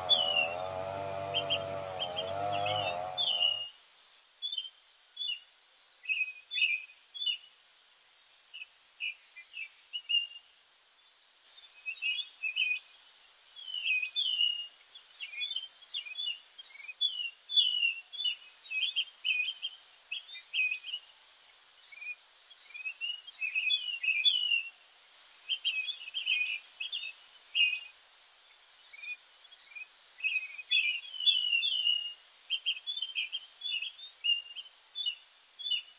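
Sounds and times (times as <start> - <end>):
buzzy bird trill: 0.0 - 3.8
small birds chirping and singing: 0.0 - 7.6, 11.4 - 35.9.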